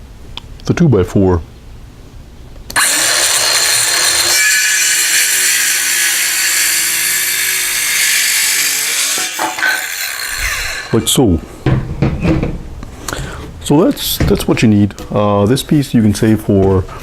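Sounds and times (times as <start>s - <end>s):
power saw cutting wood: 2.8s - 11.1s.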